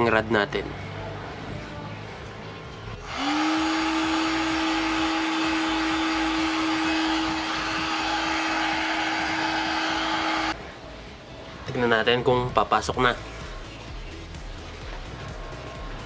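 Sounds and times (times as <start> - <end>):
heat gun fan humming: 3.0 - 10.6
rush of blown hot air: 3.0 - 10.6.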